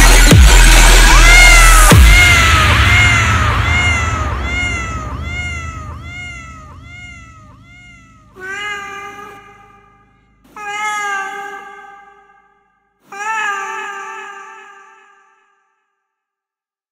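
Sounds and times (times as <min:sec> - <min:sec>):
low bass tone: 0:00.0 - 0:10.3
sampled cat meow: 0:02.2 - 0:09.8.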